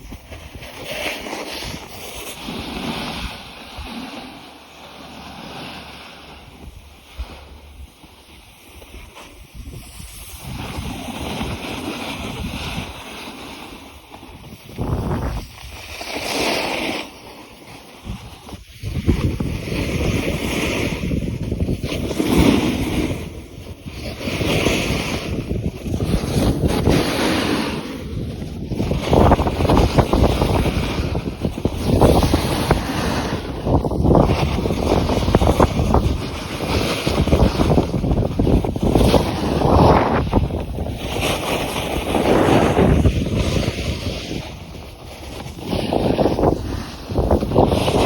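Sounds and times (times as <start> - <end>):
wind gusting across microphone: 0.0 - 16.7, 18.0 - 48.0.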